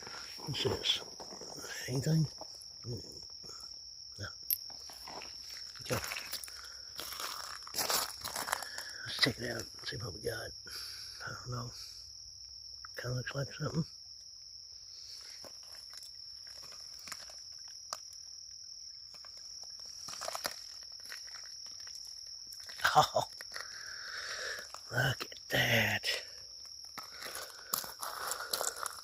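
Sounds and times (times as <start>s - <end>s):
crunching on stony ground: 0.0s - 3.4s, 4.4s - 9.8s, 15.0s - 29.0s
high insect drone: 0.0s - 29.0s
sharp crackles: 15.3s - 18.2s, 19.1s - 25.0s, 26.9s - 29.0s.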